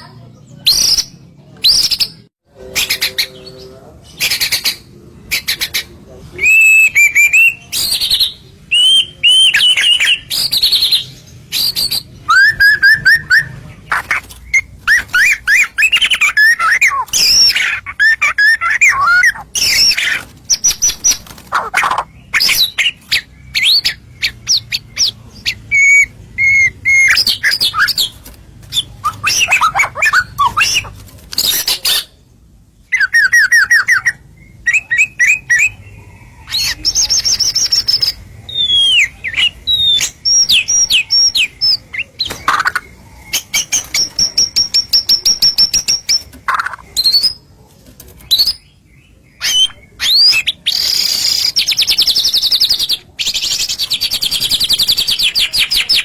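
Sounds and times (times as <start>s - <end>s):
songbird whistling and trilling: 6.4s - 13.5s, 14.5s - 21.2s, 21.9s - 30.9s, 32.9s - 47.4s, 49.4s - 56.0s.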